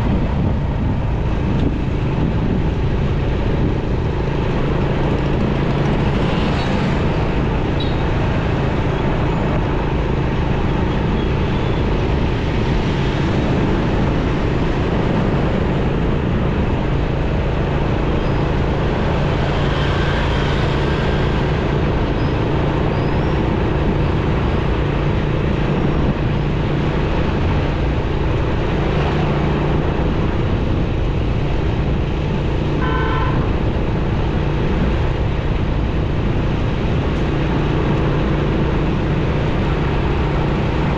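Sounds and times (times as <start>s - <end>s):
road and wind noise: 0.0s - 40.9s
surrounding traffic: 0.0s - 40.9s
vehicle horn honking: 32.8s - 33.5s.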